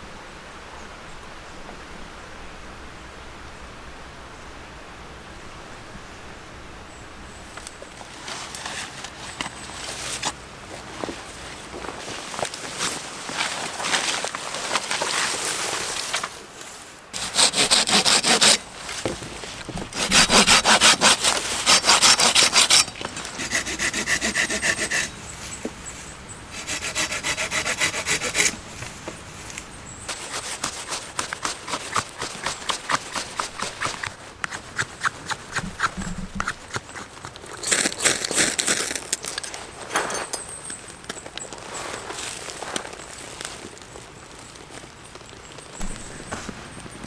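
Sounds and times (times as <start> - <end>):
hand saw cutting wood: 17.2 - 38.4.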